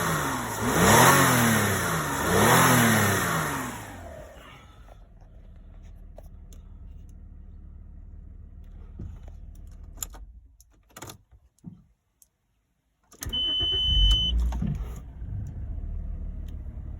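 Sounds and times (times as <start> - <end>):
car engine idling: 0.0 - 10.6
engine cranking and starting: 13.2 - 16.9.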